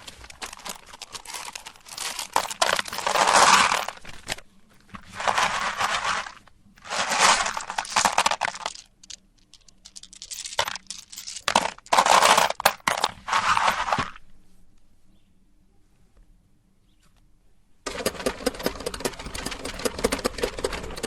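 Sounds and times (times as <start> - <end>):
candy shells crunching in grinder: 0.0 - 4.1, 5.1 - 14.0.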